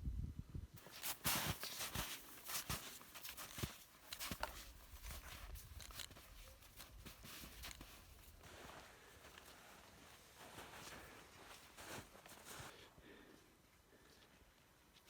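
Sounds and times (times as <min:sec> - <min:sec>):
footsteps crunching in snow: 0:00.8 - 0:12.9.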